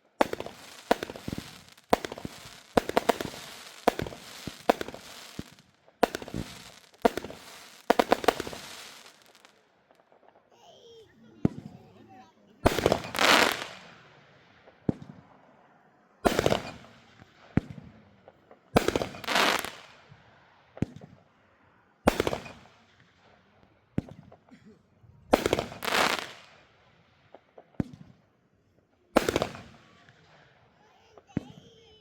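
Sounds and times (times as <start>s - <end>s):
fireworks bangs: 0.0s - 10.4s, 11.3s - 15.4s, 16.2s - 20.2s, 22.1s - 23.1s, 25.3s - 26.6s, 29.2s - 32.0s
firework pops and crackles: 0.0s - 10.5s, 12.6s - 15.2s, 16.3s - 20.1s, 20.8s - 21.2s, 22.1s - 23.2s, 24.0s - 24.5s, 25.3s - 26.7s, 27.3s - 28.3s, 29.2s - 32.0s.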